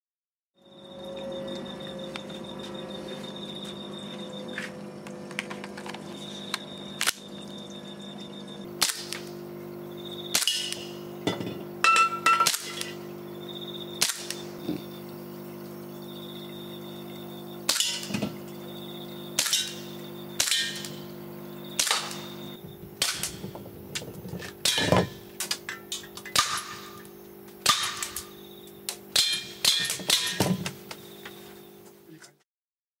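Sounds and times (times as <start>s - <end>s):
steady low hum: 0.6s - 32.2s
airsoft pistol shots: 8.8s - 9.3s, 10.3s - 11.0s, 12.4s - 12.8s, 14.0s - 14.4s, 17.7s - 18.1s, 19.4s - 19.8s, 20.4s - 21.0s, 21.8s - 22.3s, 23.0s - 23.4s, 26.3s - 27.0s, 27.6s - 28.3s.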